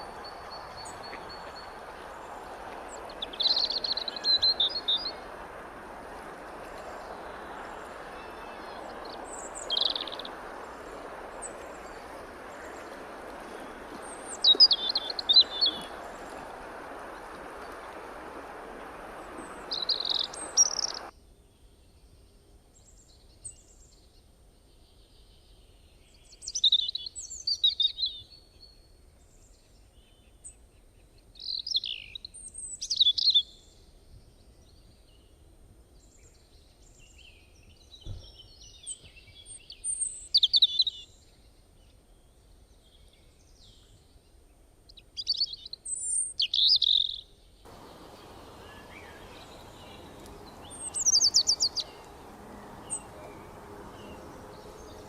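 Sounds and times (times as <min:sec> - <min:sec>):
bird chirping: 0:00.0 - 0:05.4, 0:06.7 - 0:21.1, 0:46.4 - 0:55.0
background hiss: 0:00.0 - 0:21.1, 0:47.7 - 0:55.0.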